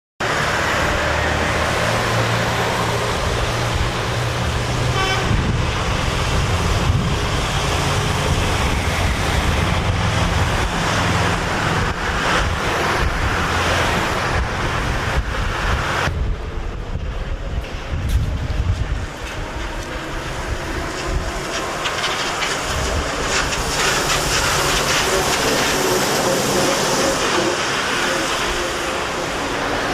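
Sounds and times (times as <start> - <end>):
street traffic: 0.2 - 29.9
short horn toot: 4.9 - 5.6.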